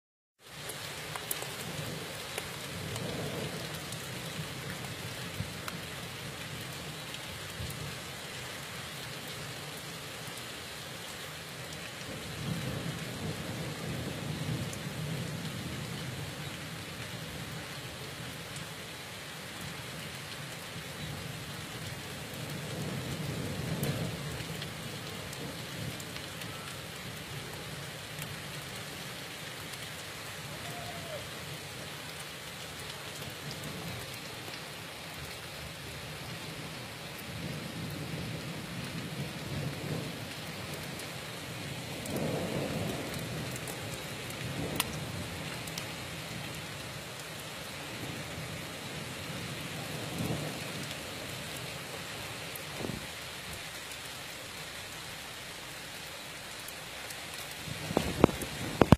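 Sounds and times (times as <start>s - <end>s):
heavy rain falling: 0.4s - 58.9s
thunder rumbling: 41.7s - 45.6s, 57.7s - 58.9s.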